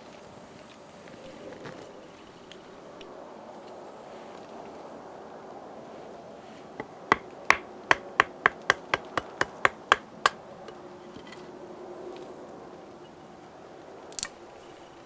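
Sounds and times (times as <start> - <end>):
wooden baton knocking on knife: 6.8 - 10.4.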